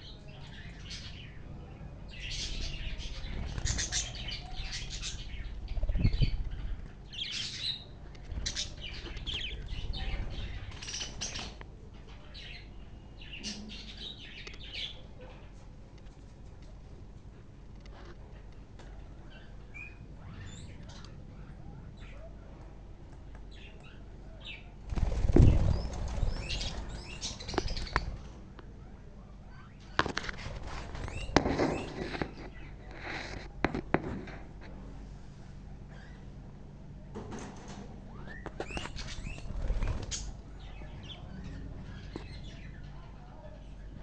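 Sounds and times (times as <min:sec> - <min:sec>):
budgies chirping: 0:00.0 - 0:15.6, 0:18.0 - 0:22.6, 0:23.3 - 0:28.4, 0:29.2 - 0:33.6, 0:37.4 - 0:44.0
budgerigars chirping: 0:02.1 - 0:11.6
wings flapping: 0:03.0 - 0:06.9, 0:24.8 - 0:28.4, 0:30.0 - 0:32.4, 0:38.6 - 0:40.4.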